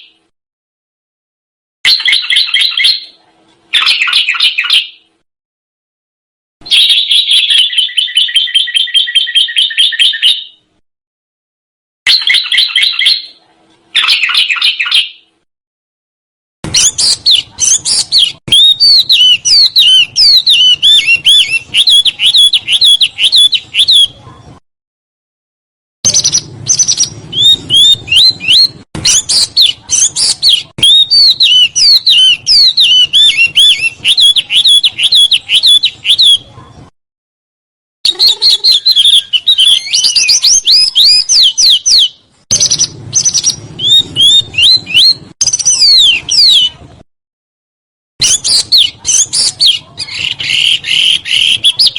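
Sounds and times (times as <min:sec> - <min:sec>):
songbird chirping: 0:01.9 - 0:05.2, 0:06.6 - 0:10.8, 0:12.1 - 0:13.4, 0:14.0 - 0:15.4, 0:16.6 - 0:24.3, 0:26.1 - 0:36.6, 0:38.1 - 0:46.8, 0:48.2 - 0:51.9.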